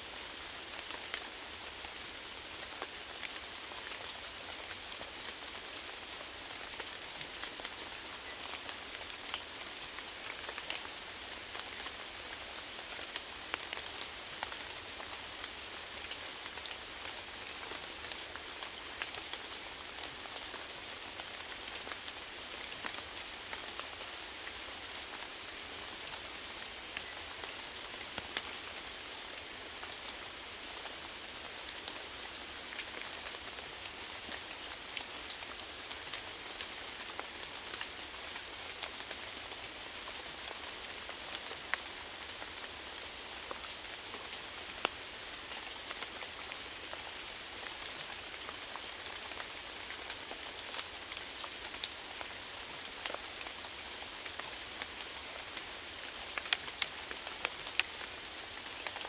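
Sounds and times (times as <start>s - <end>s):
raindrops ticking on a surface: 0.2s - 59.0s.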